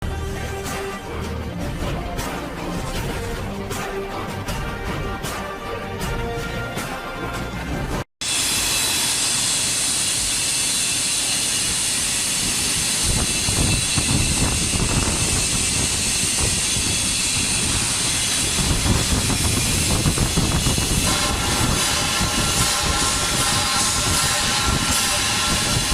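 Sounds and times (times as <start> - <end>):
welding arc hissing: 8.2 - 25.9.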